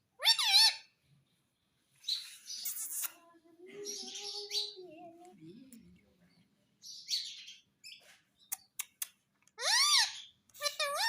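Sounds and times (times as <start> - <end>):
parrot squawk: 0.2 - 0.9, 9.6 - 11.0
parrot warbling: 0.2 - 0.9, 9.6 - 11.0.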